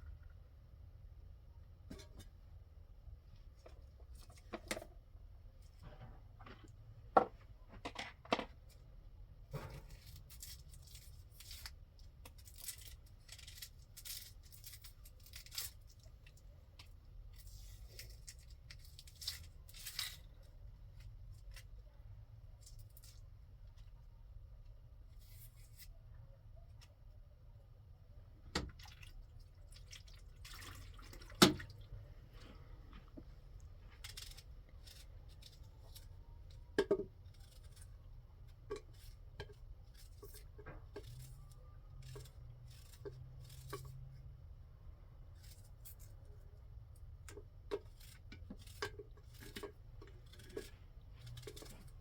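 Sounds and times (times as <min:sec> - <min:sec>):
objects being handled: 0:45.2 - 0:52.0.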